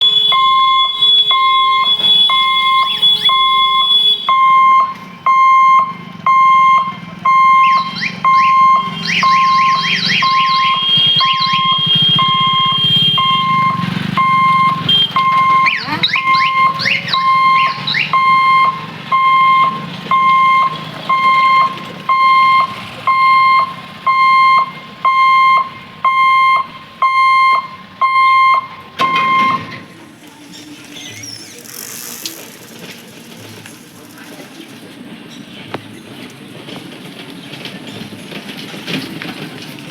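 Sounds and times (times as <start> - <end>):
level crossing warning beeps: 0.0 - 31.7.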